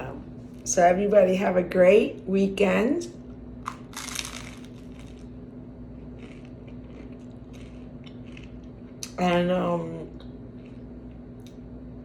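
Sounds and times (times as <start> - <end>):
food crunching and chewing: 3.6 - 9.2, 10.2 - 11.7.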